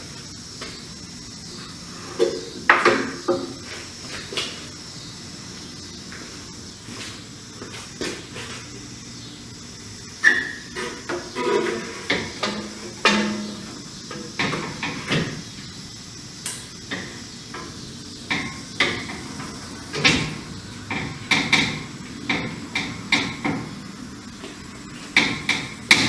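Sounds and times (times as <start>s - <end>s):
metal car parts clunking: 10.2s - 15.4s.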